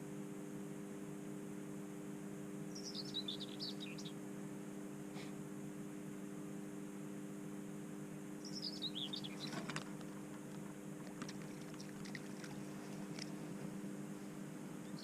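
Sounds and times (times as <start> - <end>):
steady low hum: 0.0 - 15.0
songbird warbling and chirping: 2.7 - 4.2, 8.4 - 9.7.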